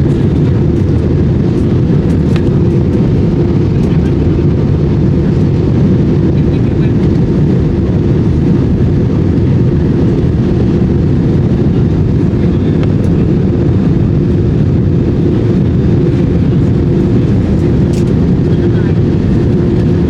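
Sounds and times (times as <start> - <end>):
airplane engine and airflow rumble: 0.0 - 20.0.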